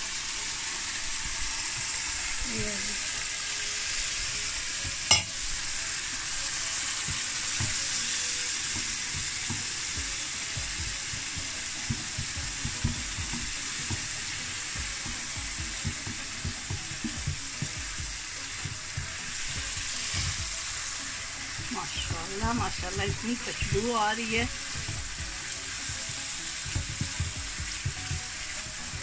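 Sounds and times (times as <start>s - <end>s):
food sizzling in a pan: 0.0s - 29.0s
spatula tapping and scraping pan: 8.6s - 20.6s, 22.3s - 29.0s.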